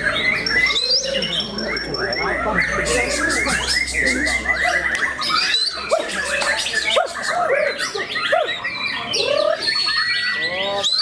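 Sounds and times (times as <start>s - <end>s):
songbird singing varied whistles: 0.0s - 11.0s.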